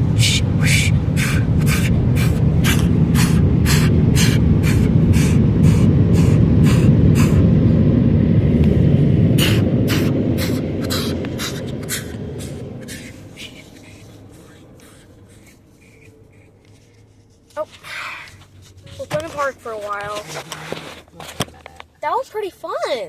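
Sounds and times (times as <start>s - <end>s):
rhythmic spraying whooshes: 0.0s - 17.5s
car wash equipment rumble: 0.0s - 23.0s.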